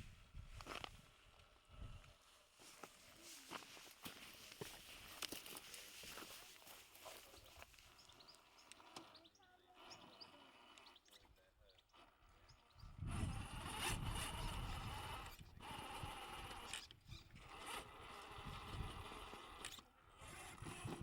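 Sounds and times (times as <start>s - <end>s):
electric motor whining: 7.4s - 21.0s.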